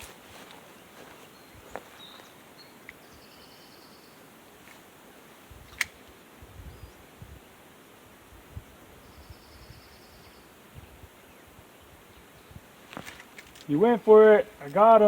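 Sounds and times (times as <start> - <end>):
faint steady hiss: 0.0 - 15.0
sharp click: 5.7 - 6.0.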